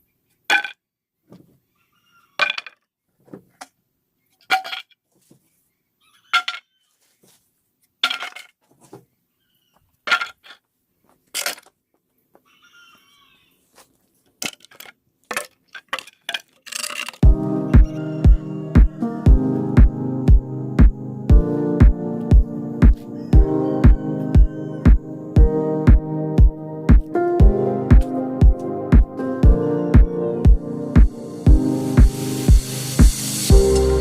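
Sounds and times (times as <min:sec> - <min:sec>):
electronic music with beat: 0:17.2 - 0:34.0.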